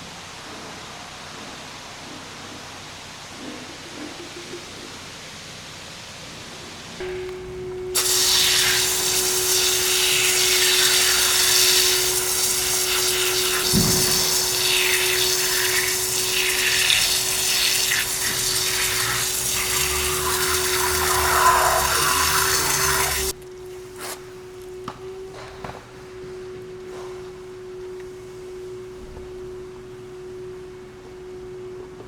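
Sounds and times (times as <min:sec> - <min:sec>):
pump hum: 0:07.0 - 0:25.5
high-pressure water spray hissing: 0:07.9 - 0:23.3.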